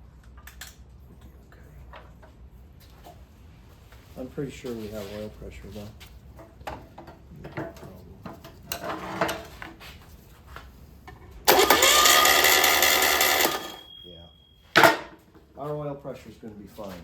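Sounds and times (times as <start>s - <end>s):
engine cranking by starter motor: 11.5s - 13.9s.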